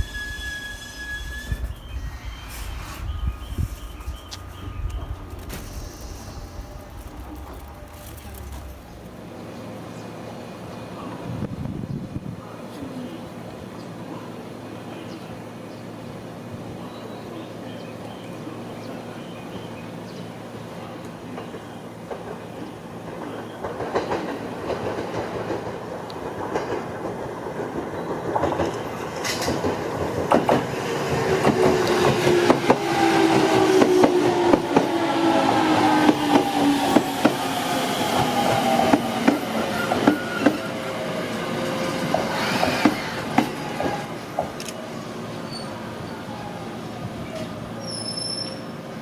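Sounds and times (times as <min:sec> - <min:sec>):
train brake whine: 0:00.0 - 0:09.2, 0:30.3 - 0:44.8, 0:47.4 - 0:48.8
wheels clacking over rail joints: 0:00.0 - 0:09.8, 0:21.1 - 0:45.8.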